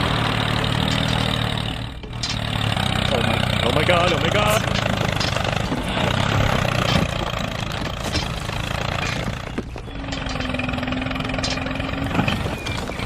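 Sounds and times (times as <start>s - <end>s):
engine running with low pulsing: 0.0s - 13.0s.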